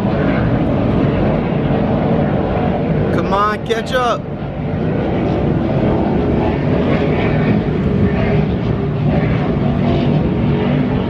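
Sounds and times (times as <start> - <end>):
powerboat engines droning: 0.0 - 11.0.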